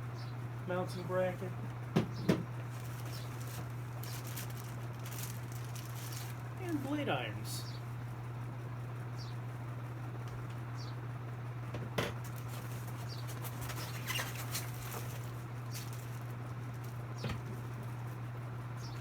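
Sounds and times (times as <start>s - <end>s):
steady low hum: 0.0s - 19.0s
packaging rustling and crinkling: 2.6s - 6.9s, 12.2s - 17.1s.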